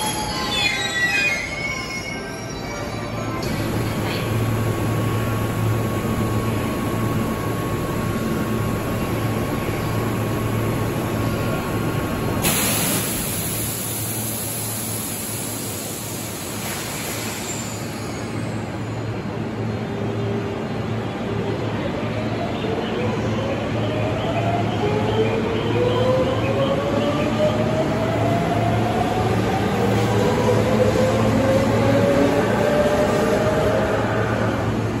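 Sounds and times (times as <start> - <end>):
electric train low hum: 0.0 - 35.0.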